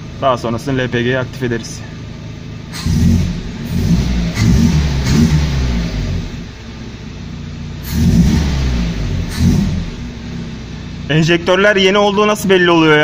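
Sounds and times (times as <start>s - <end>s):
car engine revving: 2.7s - 7.1s, 7.7s - 11.1s.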